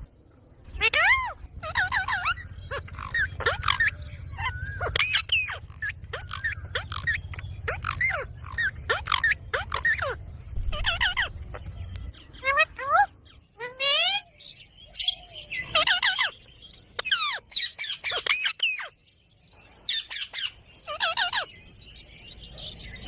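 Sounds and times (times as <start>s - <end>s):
steady low hum: 0.0s - 13.6s
parrots squawking: 0.7s - 19.0s, 19.9s - 21.6s.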